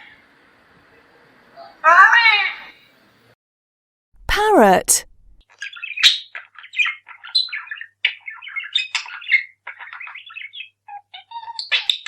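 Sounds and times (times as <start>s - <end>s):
parrot chattering and squawking: 5.6s - 12.0s.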